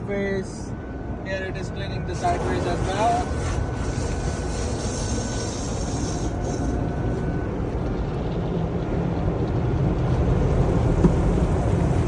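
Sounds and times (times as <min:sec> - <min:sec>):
car wash brushes rumbling: 0:02.2 - 0:06.7
water spraying on car: 0:02.2 - 0:06.7.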